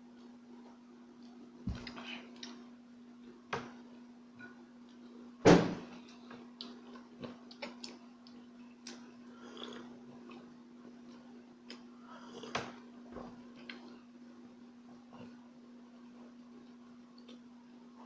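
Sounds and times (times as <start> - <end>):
steady low hum: 0.0 - 18.0
loud thump: 5.4 - 5.8.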